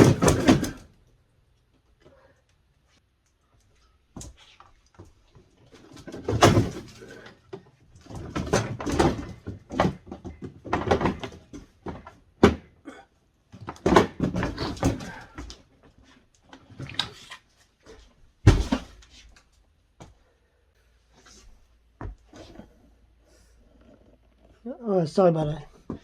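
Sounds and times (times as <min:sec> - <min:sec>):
knocks clatter and scraping: 0:00.0 - 0:01.0, 0:04.1 - 0:12.8, 0:13.5 - 0:19.5.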